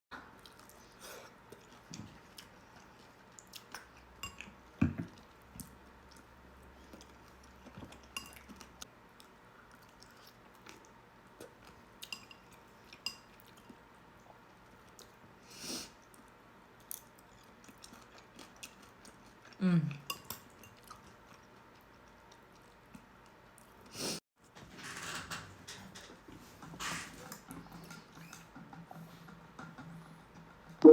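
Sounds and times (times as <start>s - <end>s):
soft chewing: 0.2s - 24.0s.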